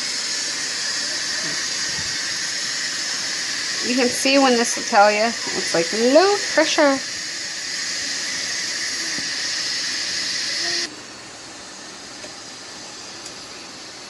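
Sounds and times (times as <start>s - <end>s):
pressure cooker steam hissing: 0.0s - 11.0s.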